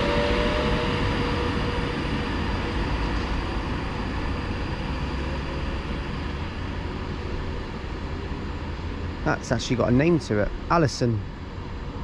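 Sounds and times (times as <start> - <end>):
electric train rumbling: 0.0 - 12.0
faint train whine: 0.0 - 12.0.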